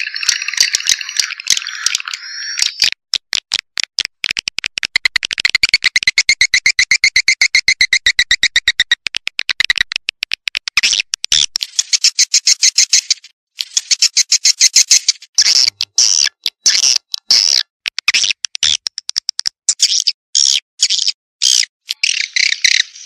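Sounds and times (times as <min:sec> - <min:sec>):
swiftlet calls: 0:11.6 - 0:15.7.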